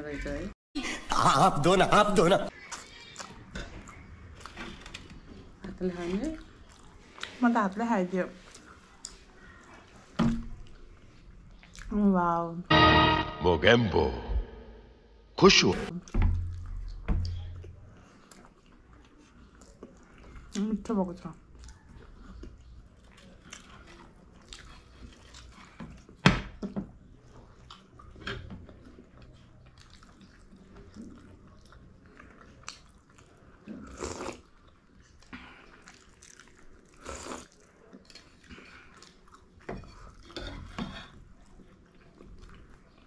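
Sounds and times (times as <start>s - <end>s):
person chewing wetly: 6.3s - 7.8s, 8.4s - 11.9s, 16.5s - 20.7s, 21.4s - 26.2s, 27.2s - 40.4s, 41.3s - 43.0s.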